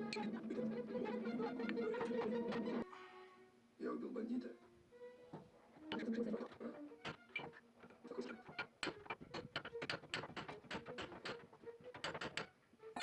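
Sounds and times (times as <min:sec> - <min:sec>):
rapid sharp clicks: 0:08.4 - 0:12.5.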